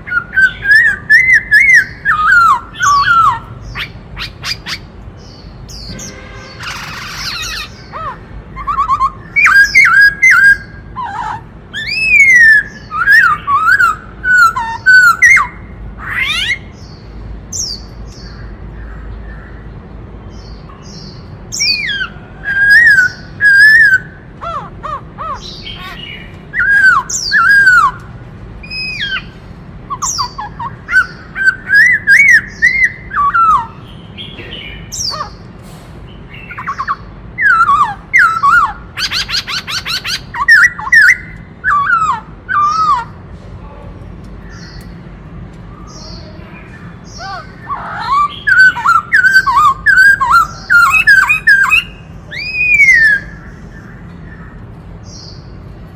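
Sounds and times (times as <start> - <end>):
bird singing whistled phrases: 0.0 - 4.9, 5.7 - 16.6, 21.6 - 24.2, 25.3 - 28.0, 29.9 - 33.8, 36.4 - 43.1, 47.2 - 53.4.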